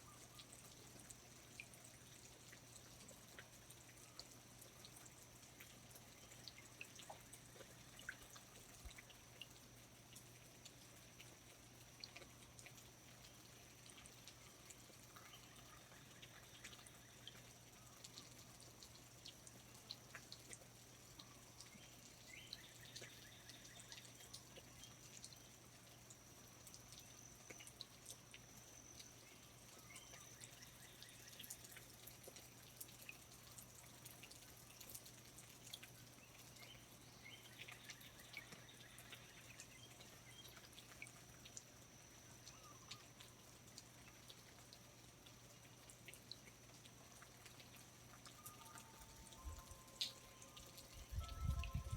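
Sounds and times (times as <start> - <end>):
water dripping from foliage: 0.0 - 51.9
thin steady high tone: 47.5 - 51.9.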